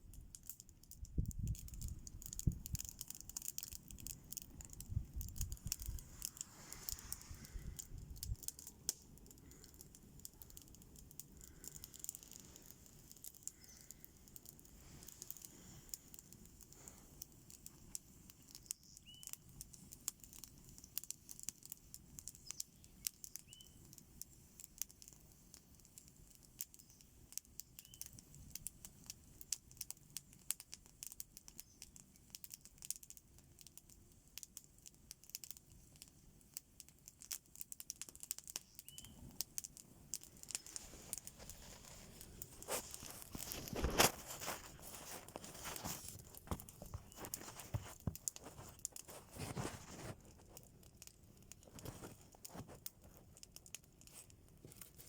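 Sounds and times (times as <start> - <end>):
campfire crackling and popping: 0.0 - 55.0.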